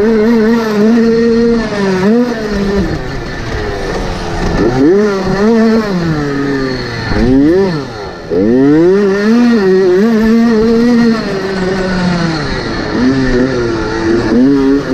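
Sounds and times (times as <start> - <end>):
dirt bike engines revving: 0.0 - 14.9.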